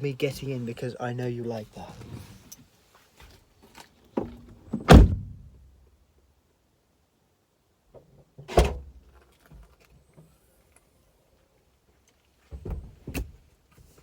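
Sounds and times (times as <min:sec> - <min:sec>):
car body thuds: 0:04.2 - 0:05.5
small knocks and rustles: 0:07.9 - 0:10.9.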